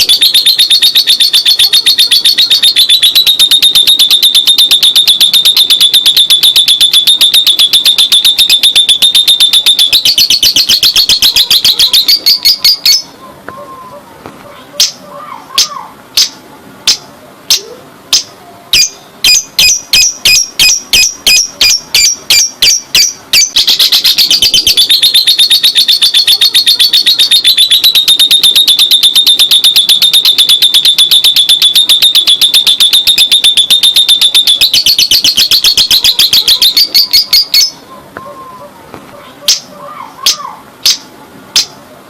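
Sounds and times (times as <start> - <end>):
lovebird shrill chirping trill: 0.0 - 13.2, 18.8 - 37.9.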